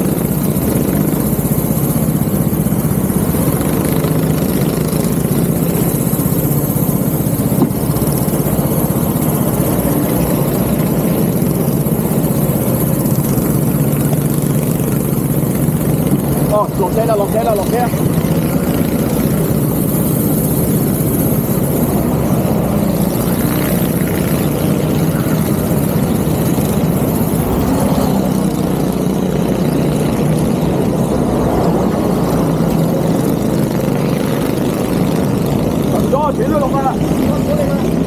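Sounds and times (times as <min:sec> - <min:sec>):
go-kart engines droning: 0:00.0 - 0:38.0.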